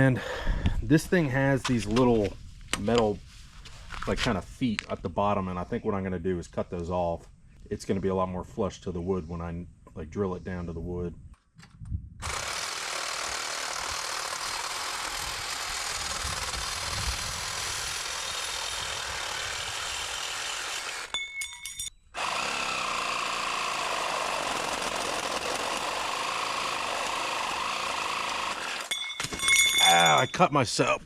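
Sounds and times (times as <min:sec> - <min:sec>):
power tool cutting metal: 0:12.2 - 0:21.2, 0:22.2 - 0:29.0.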